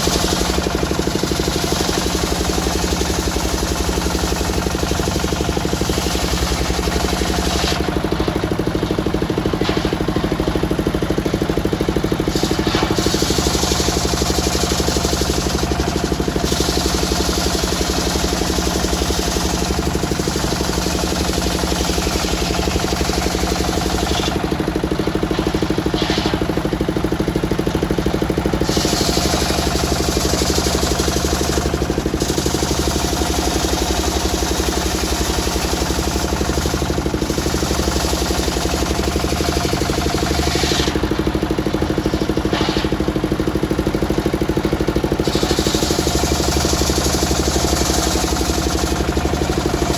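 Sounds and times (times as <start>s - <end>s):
circular sawmill engine running: 0.0s - 49.9s
saw blade hissing through wood: 21.9s - 26.7s, 28.6s - 29.6s, 40.0s - 43.2s, 45.2s - 46.2s.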